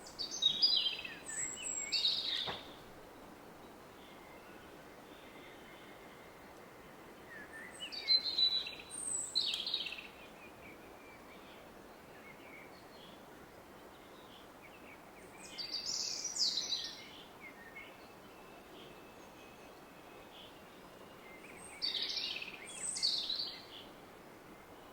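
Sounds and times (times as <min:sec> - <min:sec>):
woodland bird song: 0:00.0 - 0:24.9.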